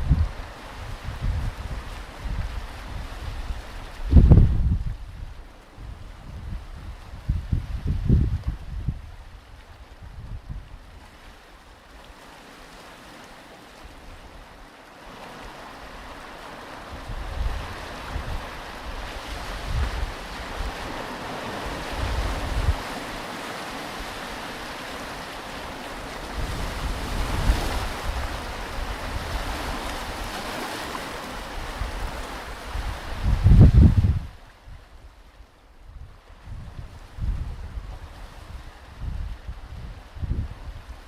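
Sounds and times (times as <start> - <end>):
wind buffeting microphone: 0.0 - 11.1, 16.9 - 23.0, 26.2 - 30.5, 31.4 - 35.2, 35.9 - 41.0
ocean surf washing onto beach: 0.0 - 41.0.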